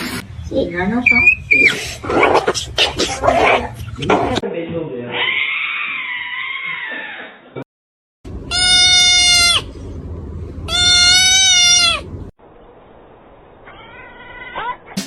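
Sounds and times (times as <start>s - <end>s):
animal calling: 0.9s - 4.4s, 8.5s - 9.7s, 10.7s - 12.1s.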